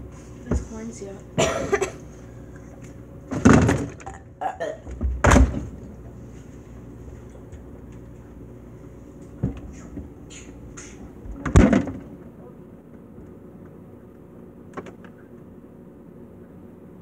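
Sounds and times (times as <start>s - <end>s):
refrigerator hum: 0.0s - 17.0s
containers knocking in fridge: 3.3s - 4.2s.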